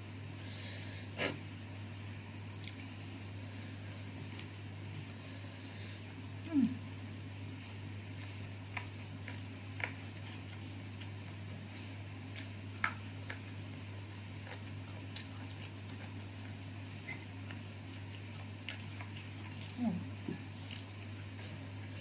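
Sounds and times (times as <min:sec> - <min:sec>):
person eating with clicks and taps: 0:02.5 - 0:22.0.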